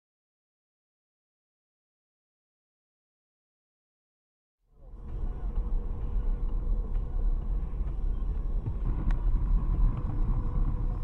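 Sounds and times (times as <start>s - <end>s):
faint steady whine: 4.7s - 11.0s
car driving rumble: 4.8s - 11.0s.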